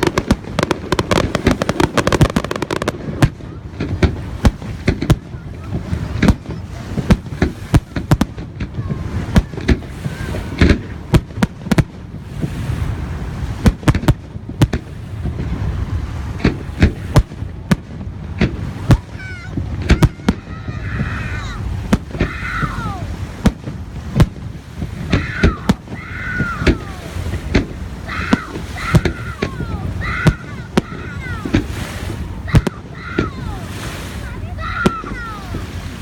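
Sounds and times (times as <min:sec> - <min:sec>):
firework shells bursting: 0:00.0 - 0:06.5.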